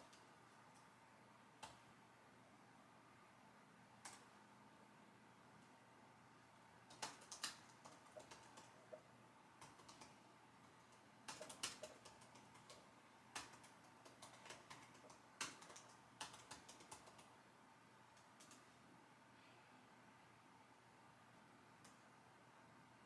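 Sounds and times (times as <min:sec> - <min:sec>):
keyboard typing clicks: 0:06.9 - 0:09.0, 0:09.6 - 0:10.2, 0:10.9 - 0:17.3, 0:18.2 - 0:18.6.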